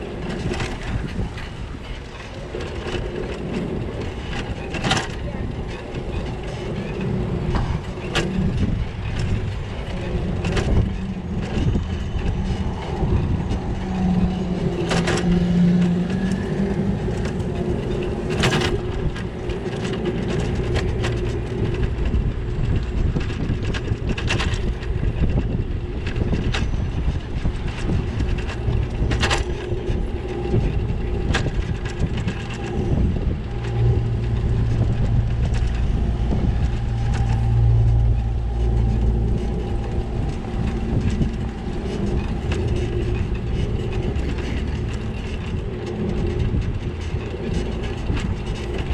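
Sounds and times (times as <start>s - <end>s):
bicycle rumbling and rattling: 0.0s - 48.9s
traffic hum: 0.0s - 48.9s.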